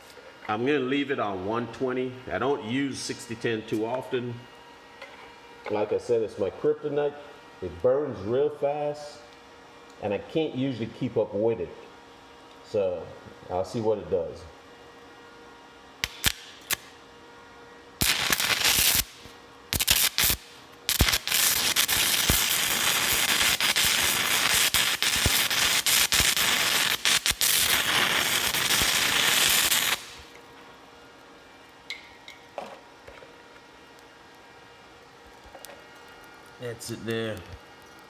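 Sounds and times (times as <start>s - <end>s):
welding arc crackling and popping: 16.0s - 17.0s, 18.0s - 30.6s, 31.2s - 38.0s.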